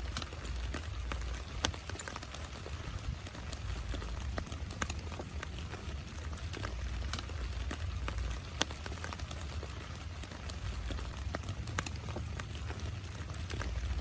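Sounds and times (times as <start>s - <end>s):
rain rumble: 0.0s - 14.0s
raindrops tapping: 0.0s - 14.0s.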